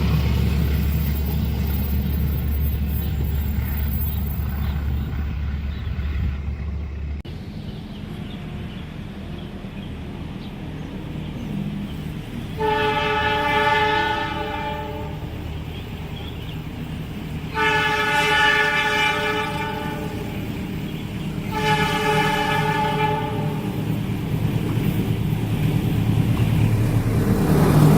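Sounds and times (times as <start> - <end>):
diesel locomotive engine rumbling: 0.0 - 27.9
locomotive horn blasts: 12.5 - 15.4, 17.5 - 20.5, 21.4 - 23.8.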